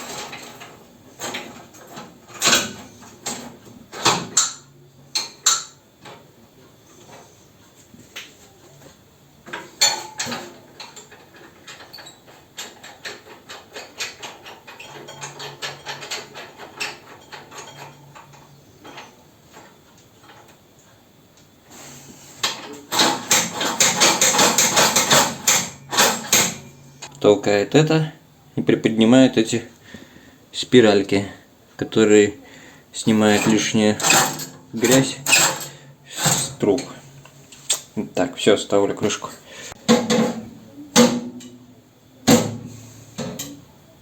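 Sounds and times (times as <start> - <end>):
rapid metal rattle: 22.9 - 26.7.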